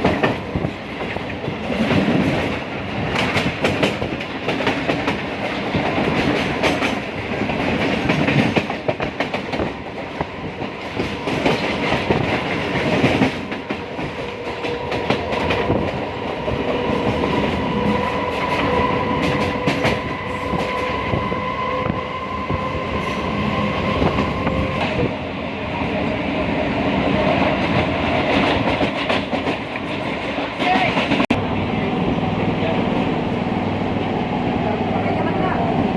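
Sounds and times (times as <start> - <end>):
wheels clacking over rail joints: 0.0 - 21.1
train rumble: 0.0 - 35.9.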